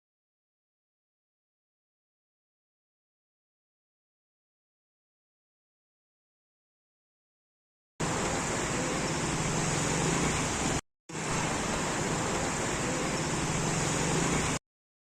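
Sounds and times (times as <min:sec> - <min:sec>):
water rushing: 0:08.0 - 0:14.6.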